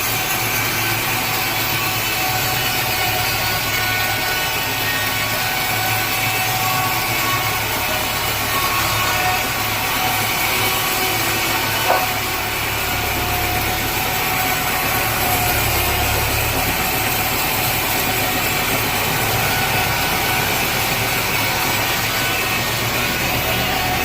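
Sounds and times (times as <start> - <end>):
sawmill machinery motor hum: 0.0 - 24.0.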